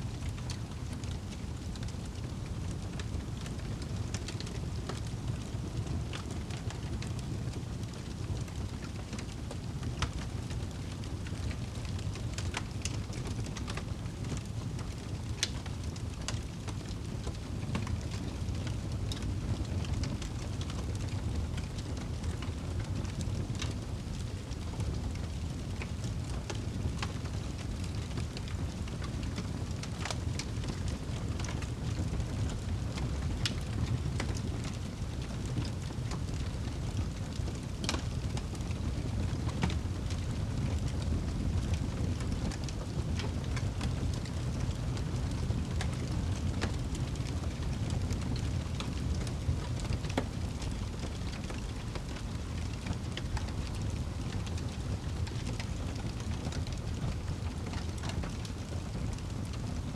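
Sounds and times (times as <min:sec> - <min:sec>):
fire flames rumbling: 0:00.0 - 0:59.9
fire popping and snapping: 0:00.1 - 0:59.9.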